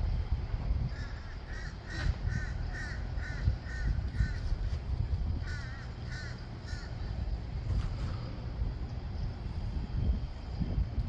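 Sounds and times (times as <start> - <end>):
bird harsh repeated calls: 0.9 - 4.7, 5.4 - 7.2.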